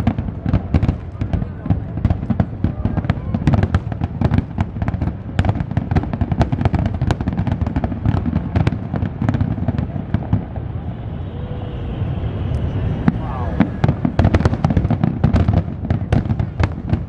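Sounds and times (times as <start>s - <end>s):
fireworks cracks and bangs: 0.0s - 11.1s, 12.5s - 17.0s.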